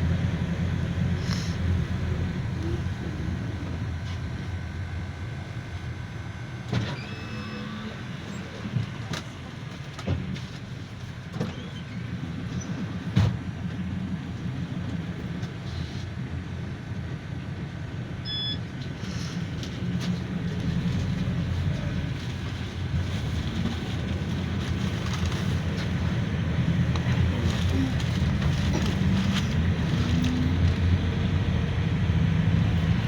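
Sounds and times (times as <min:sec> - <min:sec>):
engine and road rumble: 0:00.0 - 0:33.0.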